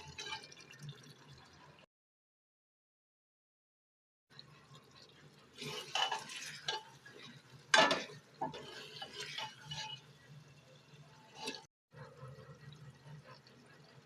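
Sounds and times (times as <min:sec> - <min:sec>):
metal spoon scraping a pot: 0:05.6 - 0:10.3, 0:11.3 - 0:11.7.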